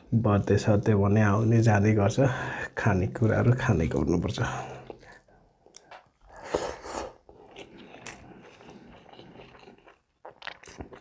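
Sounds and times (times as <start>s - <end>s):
person chewing food: 4.7s - 11.0s.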